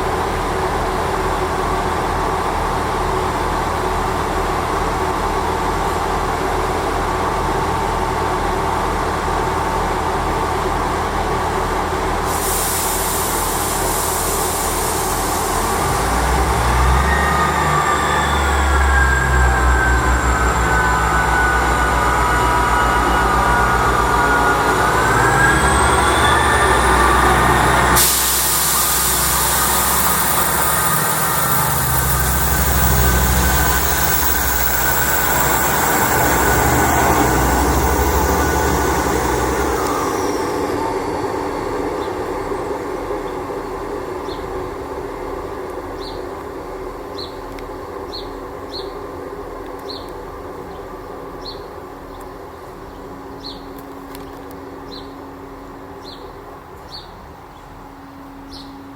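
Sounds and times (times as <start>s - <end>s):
train whine rising in pitch: 0.0s - 49.7s
train wheels rumbling on track: 0.0s - 58.9s
sudden rush of noise: 12.2s - 45.6s.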